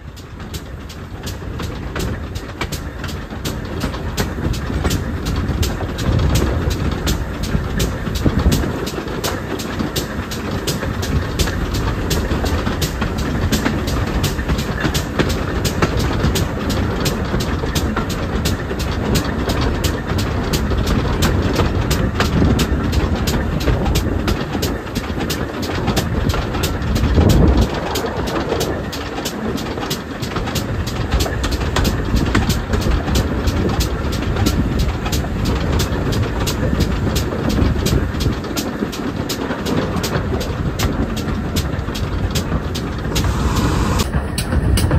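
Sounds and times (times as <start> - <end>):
rhythmic clicks of train wheels: 0.0 - 44.9
steam train rumbling: 0.0 - 44.9
low rush: 42.1 - 44.9.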